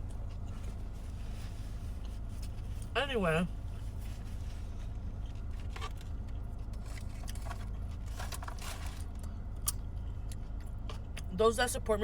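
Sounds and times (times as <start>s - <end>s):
low hum inside car: 0.0s - 12.0s
food wrappers rustling: 6.7s - 9.2s.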